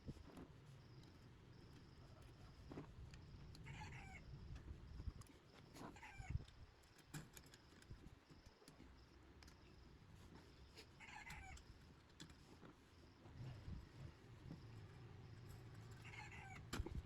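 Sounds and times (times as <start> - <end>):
faint animal calls: 3.6 - 4.4, 5.8 - 6.5, 10.8 - 11.7, 15.9 - 17.0.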